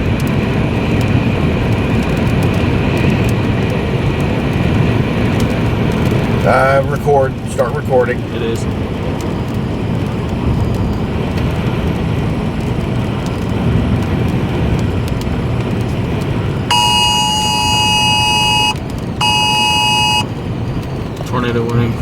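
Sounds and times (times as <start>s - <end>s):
road and engine noise in vehicle: 0.0s - 22.0s
two-tone emergency alert signal: 16.7s - 20.3s.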